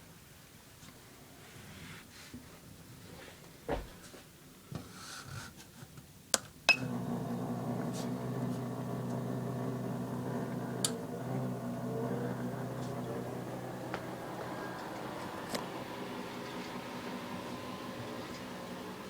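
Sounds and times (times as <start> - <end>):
motor humming: 6.7 - 19.0.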